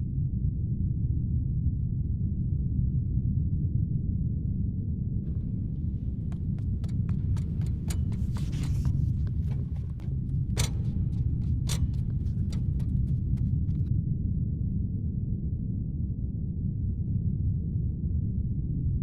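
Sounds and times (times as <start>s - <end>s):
steady low hum: 5.3s - 13.9s.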